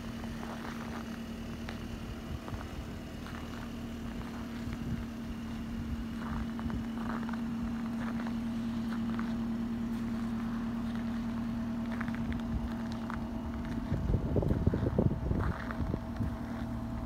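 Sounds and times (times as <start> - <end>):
car engine idling: 0.0 - 17.0
footsteps crunching in snow: 0.0 - 17.0
wind buffeting microphone: 4.1 - 5.2, 12.1 - 16.7.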